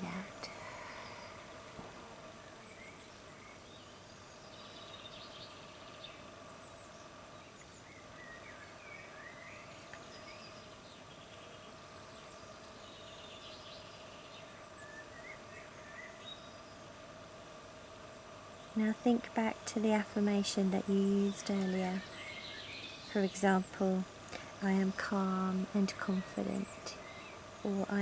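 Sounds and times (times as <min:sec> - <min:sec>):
low steady hum: 0:00.0 - 0:07.5, 0:15.6 - 0:28.0
garden birds chirping and trilling: 0:00.0 - 0:28.0.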